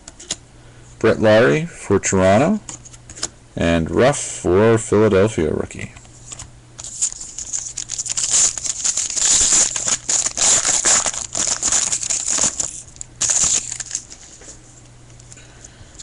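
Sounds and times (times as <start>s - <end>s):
faint electrical hum: 0.0s - 16.0s
foil wrapper tearing and crinkling: 6.8s - 14.4s.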